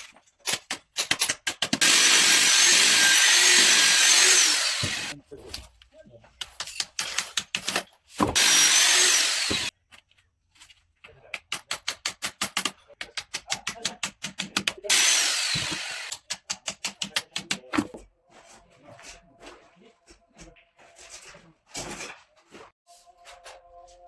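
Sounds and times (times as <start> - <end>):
power drill running: 1.8 - 5.2, 8.4 - 9.7, 14.9 - 16.1
sharp clicks and taps: 11.0 - 14.9, 15.7 - 18.0.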